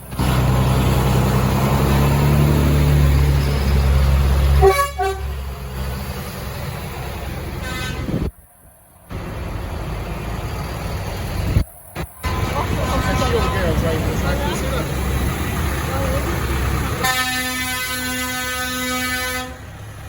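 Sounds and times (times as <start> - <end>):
tractor engines droning: 0.0 - 20.0
horn toots: 4.6 - 5.4, 7.6 - 8.3, 17.0 - 19.6.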